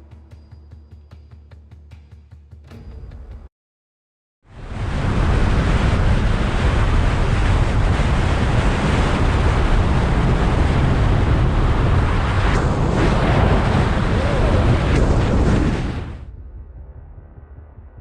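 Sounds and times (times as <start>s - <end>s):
wind rush on microphone: 4.5s - 16.3s.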